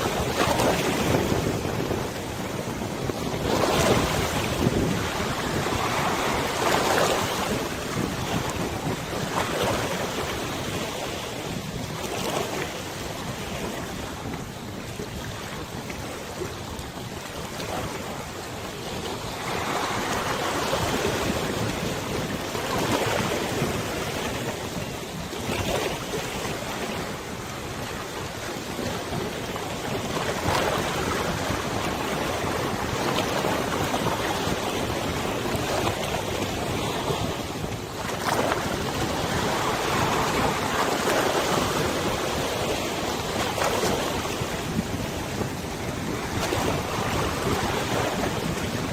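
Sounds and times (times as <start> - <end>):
wind over river: 0.0 - 48.9.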